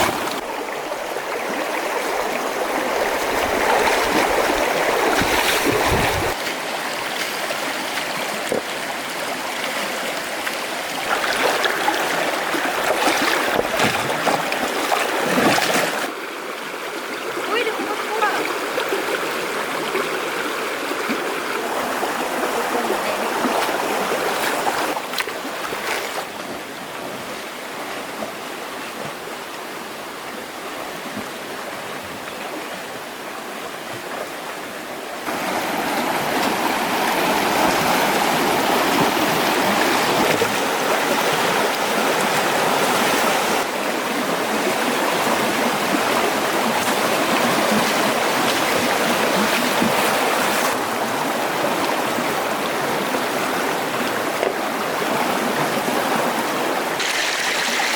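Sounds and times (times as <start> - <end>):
stream water rushing: 0.0 - 57.9.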